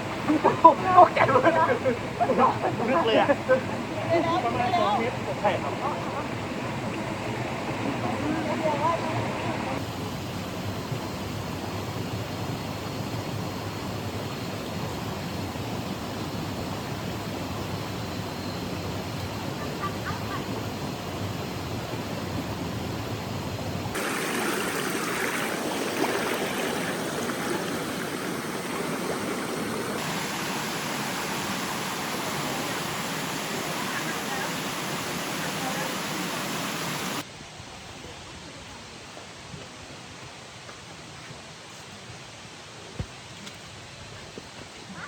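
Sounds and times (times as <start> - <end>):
waterfall rushing: 23.8 - 37.2.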